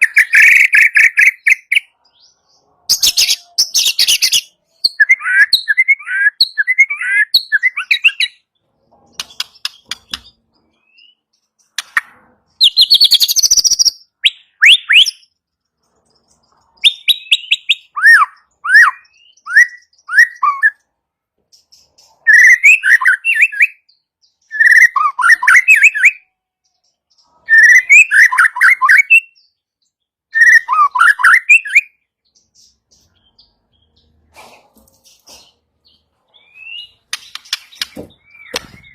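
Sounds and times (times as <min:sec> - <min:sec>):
bird singing whistled phrases: 0:02.9 - 0:08.4, 0:12.6 - 0:15.3, 0:16.8 - 0:20.8, 0:22.2 - 0:26.3, 0:27.4 - 0:29.5, 0:30.3 - 0:32.0, 0:36.4 - 0:38.9.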